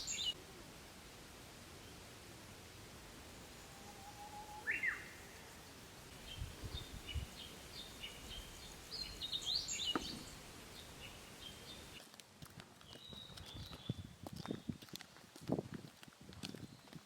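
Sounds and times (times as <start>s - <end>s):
whistled bird note: 3.7s - 5.3s.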